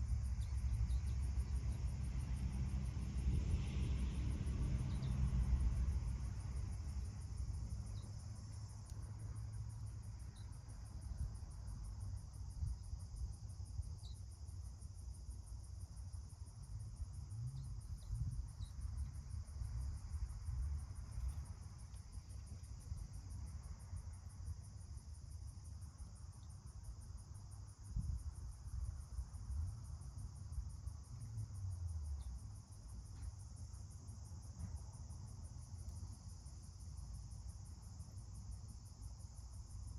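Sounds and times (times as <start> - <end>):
high insect trill: 0.0 - 39.9.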